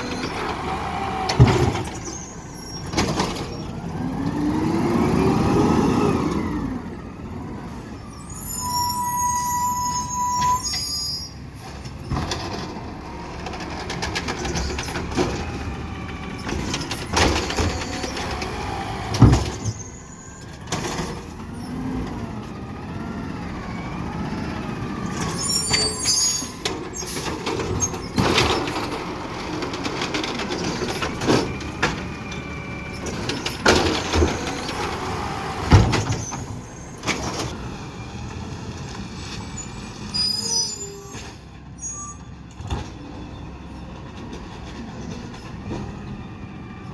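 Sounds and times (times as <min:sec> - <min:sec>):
loud bangs and clunks: 0:00.0 - 0:02.2, 0:11.9 - 0:19.9, 0:25.0 - 0:37.6.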